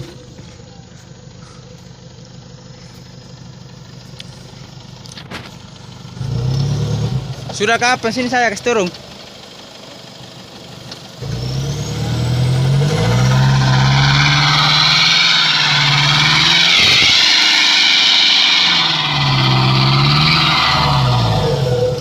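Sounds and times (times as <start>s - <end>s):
pickup truck engine revving hard: 11.2s - 22.0s.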